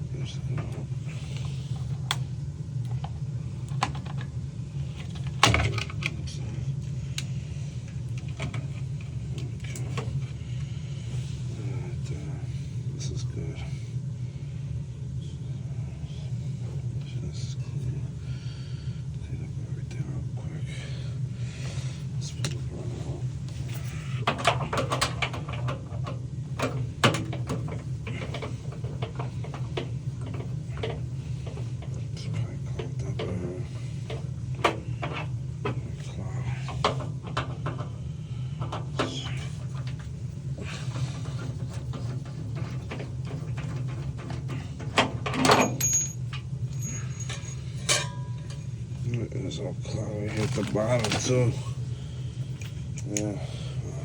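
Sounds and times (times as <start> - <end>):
steady low hum: 0.0 - 54.0
tools and metal parts knocking: 41.9 - 46.2.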